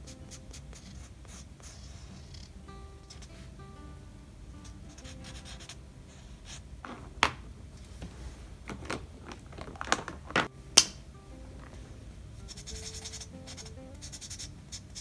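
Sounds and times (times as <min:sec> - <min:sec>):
marker scratching on paper: 0:00.0 - 0:03.5, 0:04.6 - 0:07.0, 0:12.5 - 0:15.0.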